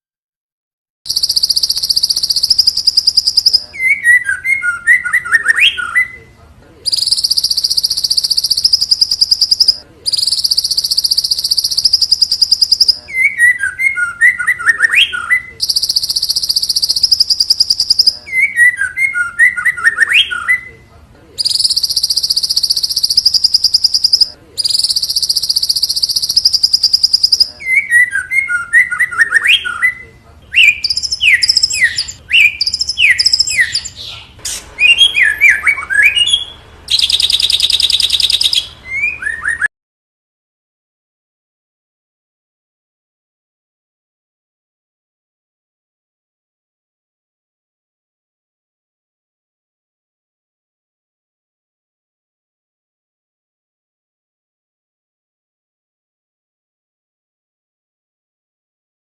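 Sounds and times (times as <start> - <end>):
bird singing buzzing trills: 1.1 - 6.0, 6.9 - 14.4, 15.6 - 19.7, 21.4 - 28.9, 30.6 - 39.6
bird whistled phrases: 1.1 - 6.3, 6.9 - 20.8, 21.4 - 39.7.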